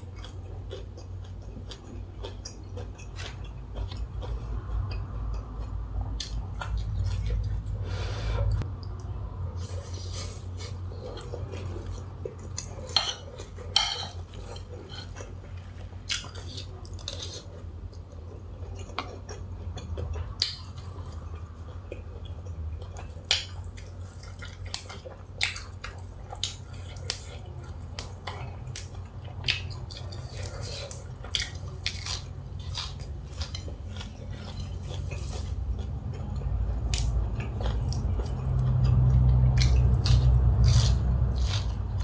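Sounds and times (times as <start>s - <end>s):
low steady hum: 0.0s - 42.0s
person chewing and biting: 0.1s - 7.8s, 9.8s - 42.0s
cutlery clicking on plate: 13.8s - 14.2s.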